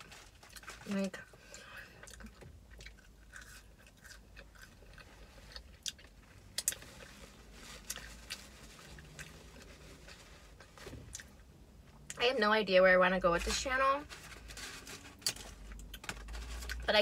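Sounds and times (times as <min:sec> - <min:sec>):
person chewing sandwich: 0:00.0 - 0:11.4.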